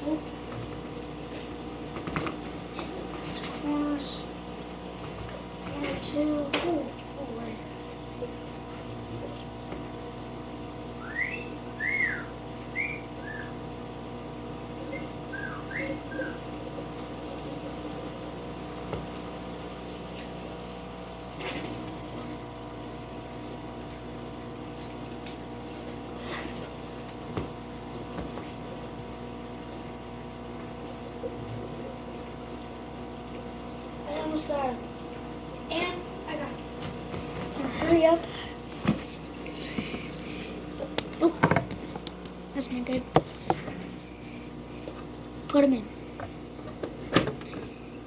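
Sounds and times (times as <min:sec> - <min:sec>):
electrical hum: 0:00.0 - 0:48.0
high whistle-like chirps: 0:11.0 - 0:13.6, 0:14.9 - 0:16.4.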